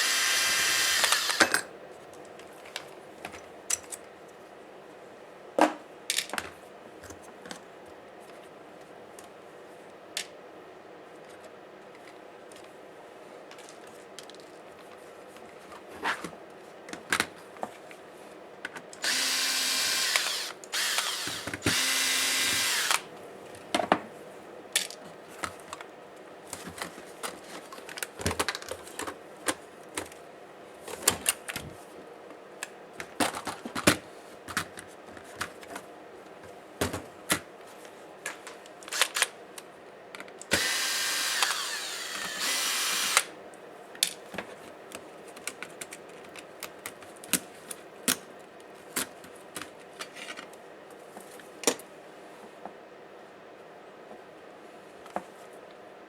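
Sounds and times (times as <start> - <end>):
electric screwdriver whirring: 0.0 - 1.5, 19.0 - 23.1, 40.5 - 43.3
small screws and plastic clicking: 19.0 - 23.0, 40.5 - 43.3.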